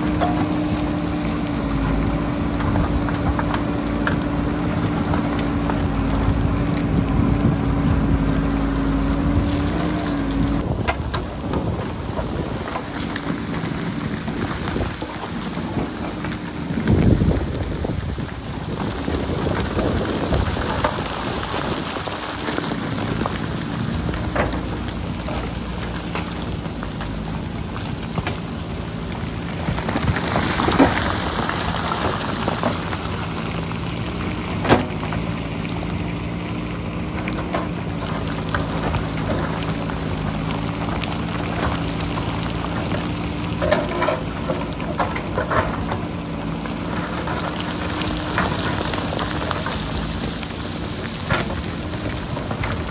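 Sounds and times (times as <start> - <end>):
wind on microphone: 0.0 - 24.4
diesel engine running: 0.0 - 52.9.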